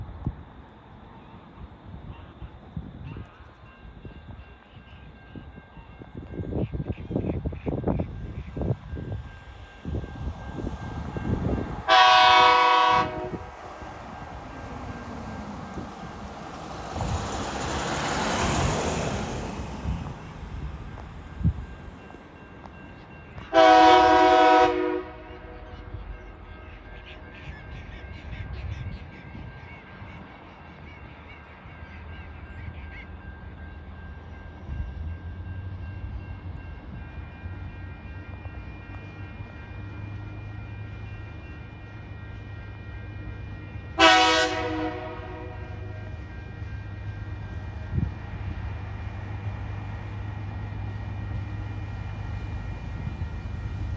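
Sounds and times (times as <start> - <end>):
locomotive horn blast: 11.8 - 13.6, 23.5 - 25.9, 43.9 - 46.1.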